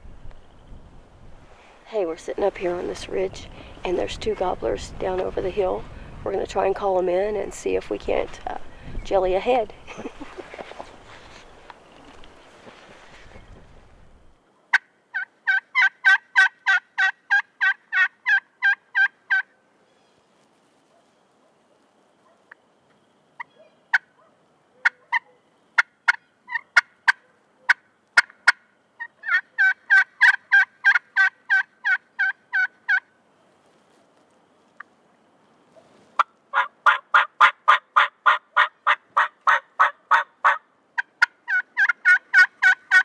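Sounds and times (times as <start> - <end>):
turkey call clucking cutts: 14.7 - 19.5, 24.8 - 33.1, 36.2 - 43.0
turkey call yelps: 14.7 - 19.5, 23.4 - 24.2, 24.8 - 33.1, 36.2 - 43.0.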